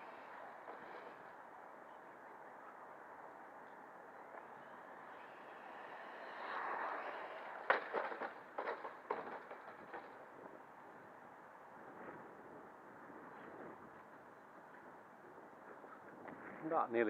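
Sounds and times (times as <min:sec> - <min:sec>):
sharp knocks and clatters: 0:07.6 - 0:10.3.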